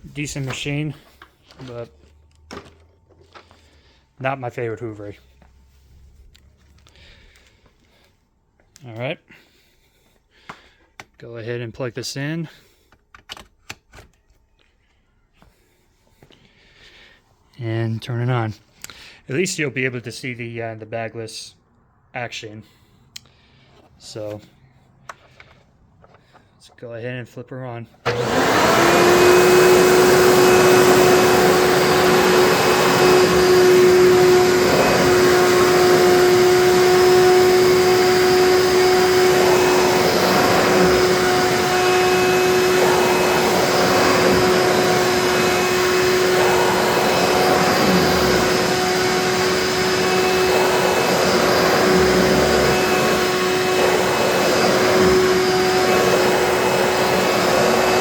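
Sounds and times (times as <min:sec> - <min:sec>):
upright vacuum cleaner running: 0:28.0 - 0:58.0.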